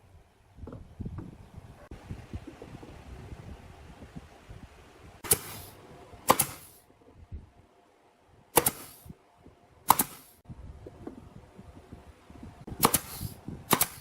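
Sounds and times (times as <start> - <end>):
nail gun firing: 5.2 - 6.8, 8.5 - 9.1, 9.9 - 10.4, 12.8 - 14.0
short hiss of air: 5.2 - 6.8, 8.6 - 9.2, 9.9 - 10.4, 12.8 - 14.0.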